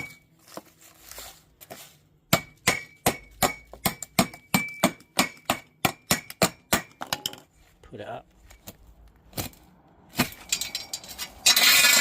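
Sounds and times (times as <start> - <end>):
hammer striking metal grate: 2.3 - 7.4.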